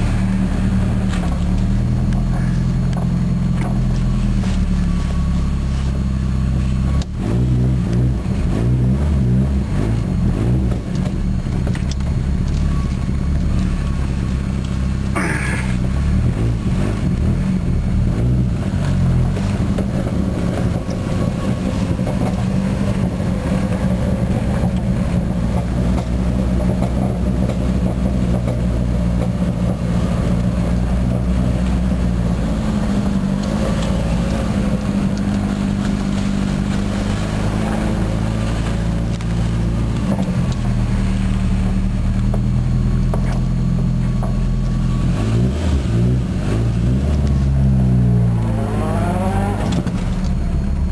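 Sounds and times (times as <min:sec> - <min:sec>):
car engine loud exhaust drone: 0:00.0 - 0:50.9.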